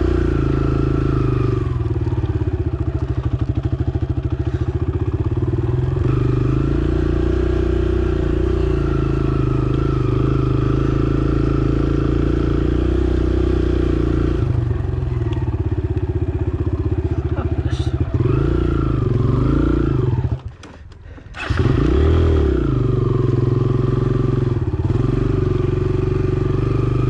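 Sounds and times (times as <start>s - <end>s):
dirt bike engine running: 0.0s - 27.0s.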